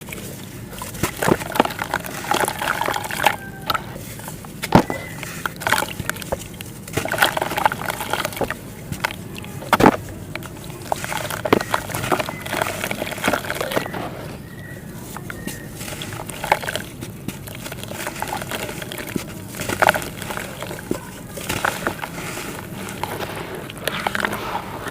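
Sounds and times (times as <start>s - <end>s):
wet clay squelching by hand: 0.0s - 24.9s.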